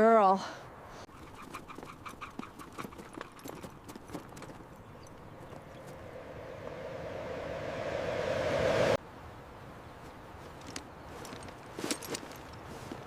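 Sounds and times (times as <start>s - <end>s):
horse hooves clip-clopping: 1.2s - 5.6s
rushing noise: 5.1s - 9.0s.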